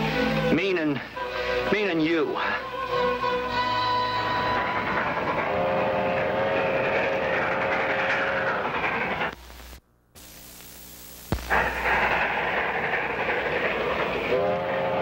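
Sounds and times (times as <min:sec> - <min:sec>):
train rail noise: 0:00.0 - 0:09.4, 0:11.5 - 0:15.0
train whistle blowing: 0:01.2 - 0:01.7, 0:02.4 - 0:07.7, 0:14.2 - 0:15.0
faint hum: 0:05.3 - 0:13.4.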